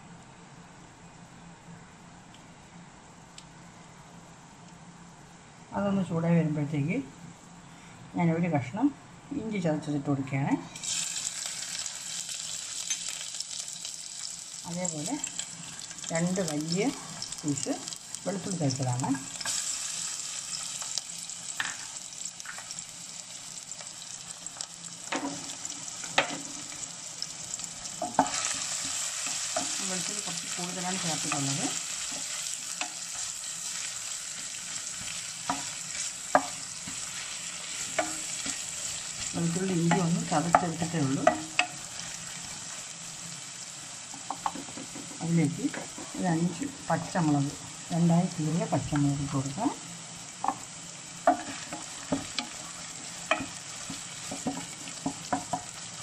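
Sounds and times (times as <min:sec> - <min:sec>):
garlic sizzling in hot oil: 0:09.9 - 0:56.0
spatula scraping and tapping a pan: 0:25.1 - 0:26.8, 0:28.0 - 0:30.4, 0:35.0 - 0:37.2, 0:37.8 - 0:38.6, 0:39.7 - 0:41.8, 0:44.1 - 0:45.2, 0:50.4 - 0:52.6, 0:53.2 - 0:55.8.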